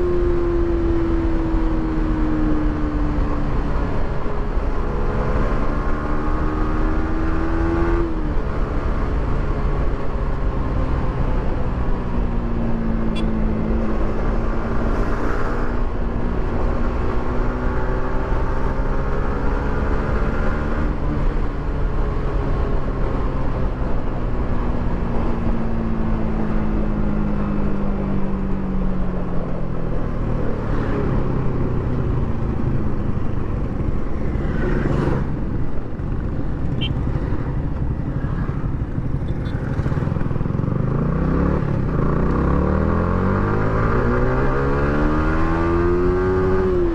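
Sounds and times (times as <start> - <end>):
motorcycle engine: 29.6 - 46.9.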